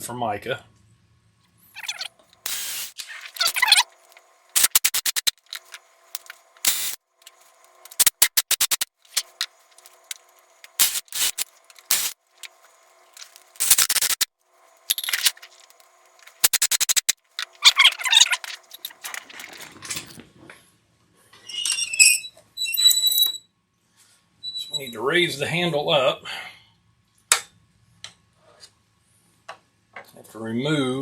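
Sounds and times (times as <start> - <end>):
squeaky bursts: 1.8 - 3.9
rapid clicking and rasping: 2.2 - 14.3, 15.2 - 19.4.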